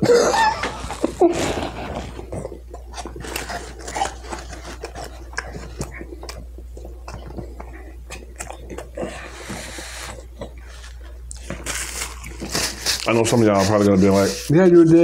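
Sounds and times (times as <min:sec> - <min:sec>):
chewing food with wet mouth clicks: 0:02.0 - 0:12.6
plastic fork scraping styrofoam: 0:11.6 - 0:15.0.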